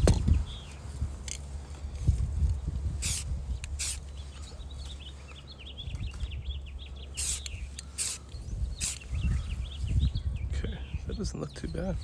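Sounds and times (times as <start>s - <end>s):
small birds chirping: 0.0s - 12.0s
short hissing bursts: 3.0s - 4.0s, 7.2s - 9.6s.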